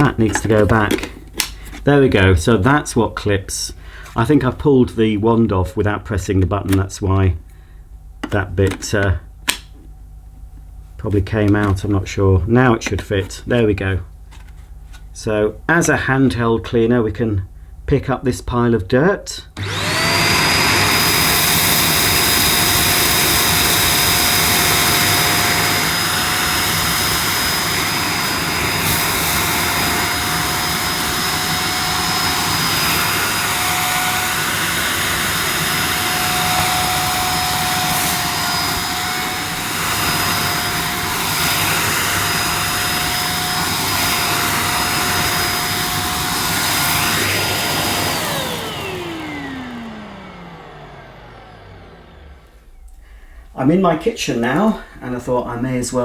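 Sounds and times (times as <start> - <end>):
vacuum motor spinning down: 19.6 - 53.1
handheld vacuum cleaner whine: 19.6 - 53.2.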